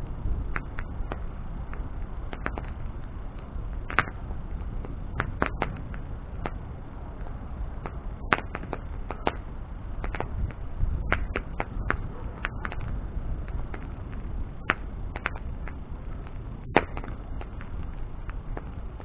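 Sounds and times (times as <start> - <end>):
bonfire crackling and popping: 0.0 - 19.0
low rumble of flame: 0.0 - 19.0.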